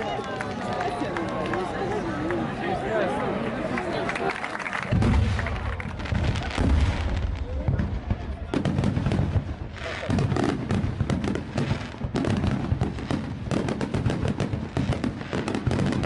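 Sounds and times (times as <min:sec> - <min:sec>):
fireworks booms and crackles: 0:04.8 - 0:16.0.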